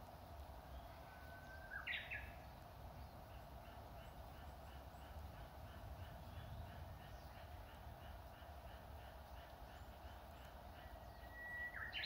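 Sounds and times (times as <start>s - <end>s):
bird singing whistled song: 1.5s - 2.3s, 11.0s - 12.0s.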